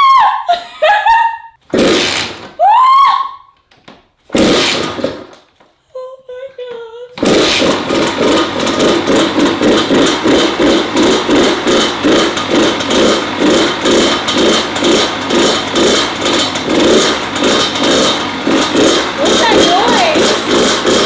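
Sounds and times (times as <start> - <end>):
two-stroke dirt bike engine: 1.7 - 2.4, 4.3 - 5.4, 7.2 - 21.0
exhaust pinging: 7.2 - 21.0.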